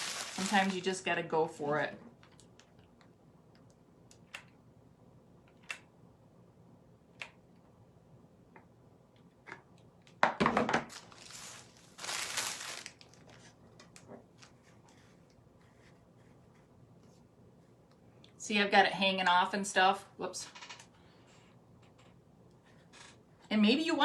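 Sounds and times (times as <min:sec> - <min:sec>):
dry moss crushed and crinkled: 0:00.0 - 0:01.1, 0:11.0 - 0:13.4.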